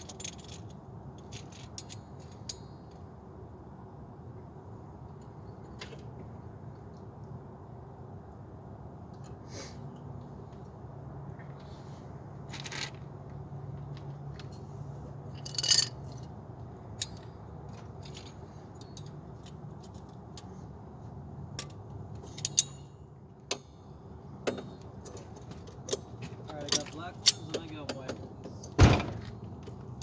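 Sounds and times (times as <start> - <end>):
rattling jingle: 15.2 - 16.3.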